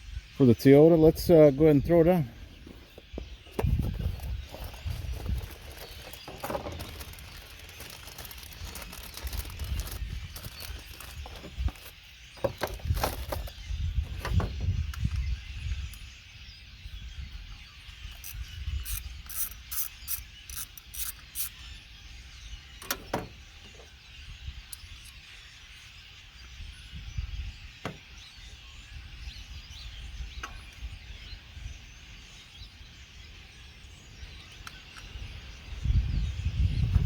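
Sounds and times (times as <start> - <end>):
ratchet wrench clicking: 18.2 - 21.6.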